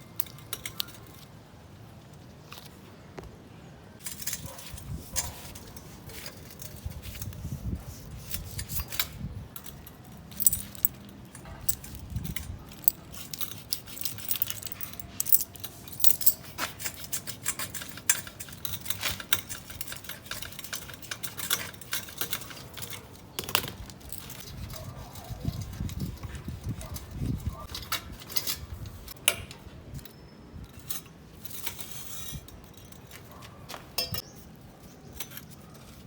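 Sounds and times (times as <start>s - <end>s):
small metal objects clinking: 8.6s - 24.9s.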